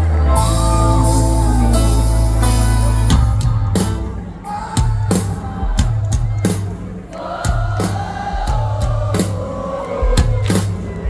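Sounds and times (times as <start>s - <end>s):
heavy bass: 0.0s - 6.2s
live band music: 0.0s - 9.4s
drum kit beat: 0.3s - 11.0s.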